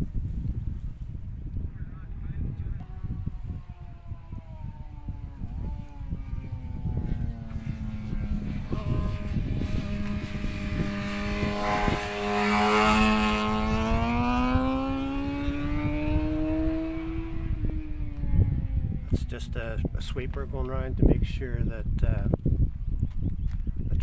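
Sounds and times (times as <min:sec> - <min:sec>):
wind on microphone: 0:00.0 - 0:24.0
vehicle engine passing: 0:02.8 - 0:19.4.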